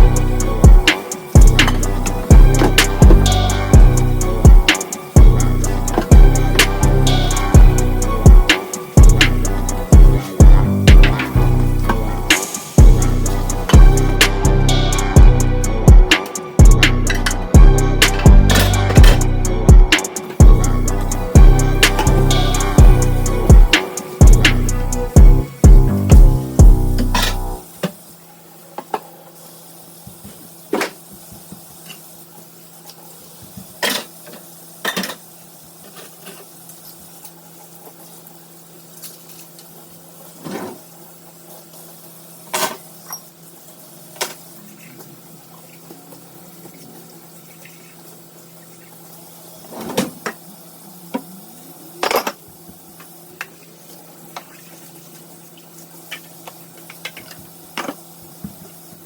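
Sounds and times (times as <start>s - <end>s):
steady low hum: 0.0s - 27.6s
dishes clattering in a sink: 33.8s - 35.2s.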